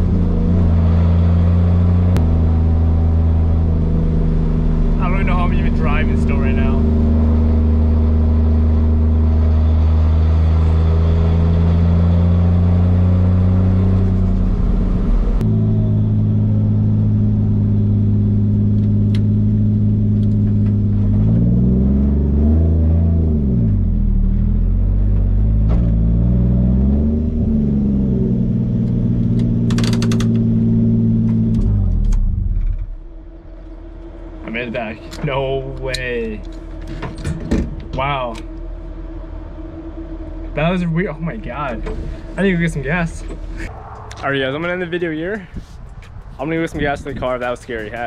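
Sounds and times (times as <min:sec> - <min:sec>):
car engine revving: 0:00.0 - 0:46.5.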